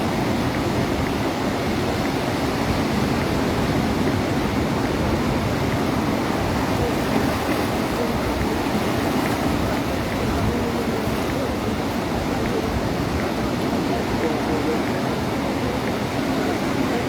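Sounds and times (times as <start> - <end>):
ocean surf washing on shore: 0.0 - 17.0.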